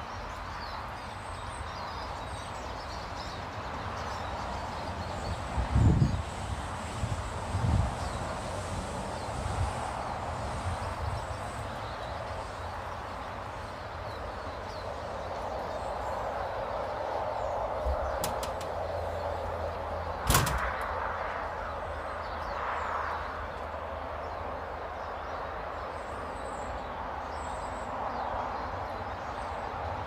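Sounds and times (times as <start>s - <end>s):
small birds calling: 0.0s - 7.0s, 7.8s - 30.0s
low wind rumble: 0.0s - 30.0s
sharp knock: 20.2s - 20.9s.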